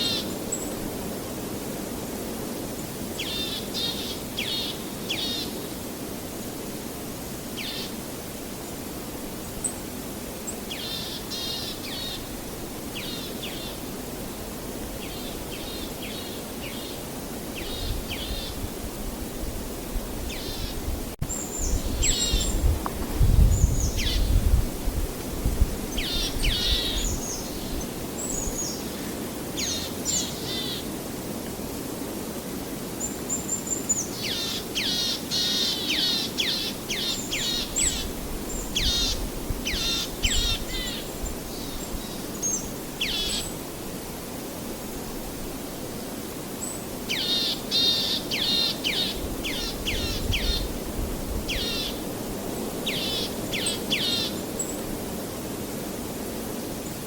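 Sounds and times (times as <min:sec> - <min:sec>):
songbirds chirping: 0:07.5 - 0:18.7, 0:19.4 - 0:24.6, 0:25.7 - 0:31.0.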